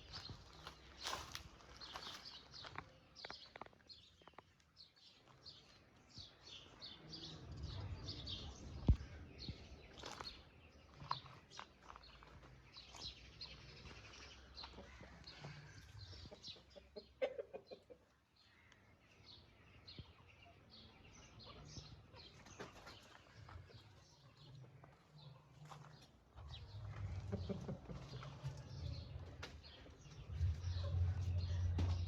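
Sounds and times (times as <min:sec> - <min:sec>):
chicks peeping: 0:26.0 - 0:32.0.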